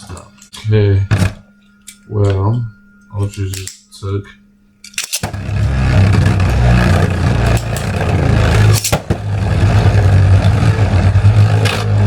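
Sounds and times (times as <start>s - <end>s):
spinning tops clashing clicks: 4.8s - 5.4s, 7.4s - 9.2s
spinning tops whirring and grinding: 4.9s - 12.0s.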